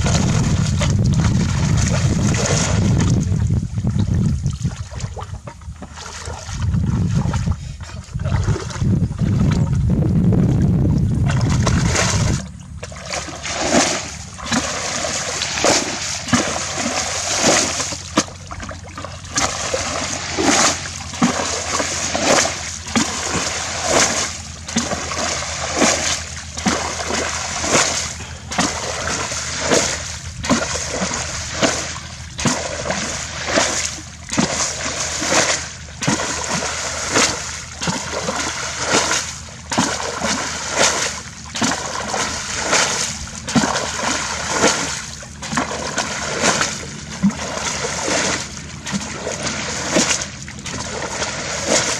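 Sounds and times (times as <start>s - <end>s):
low rumble: 0.0s - 51.9s
hands splashing in water: 11.2s - 51.9s.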